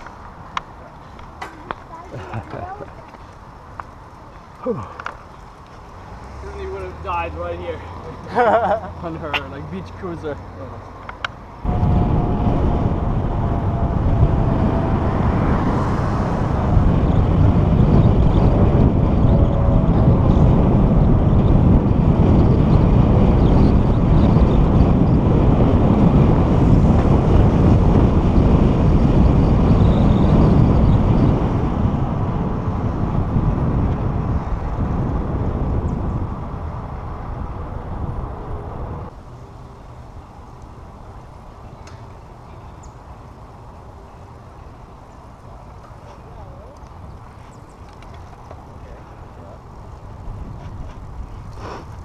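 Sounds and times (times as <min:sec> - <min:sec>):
wind buffeting microphone: 0:11.5 - 0:52.0.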